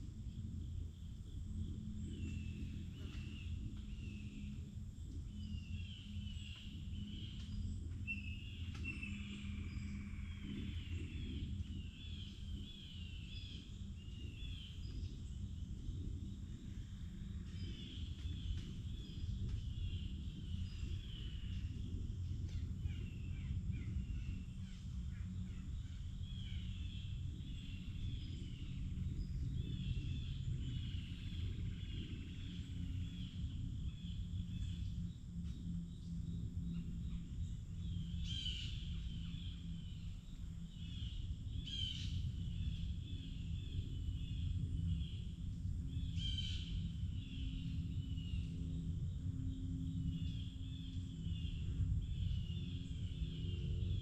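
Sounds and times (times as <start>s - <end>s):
steady low rumble: 0.0s - 54.0s
songbirds chirping: 0.3s - 54.0s.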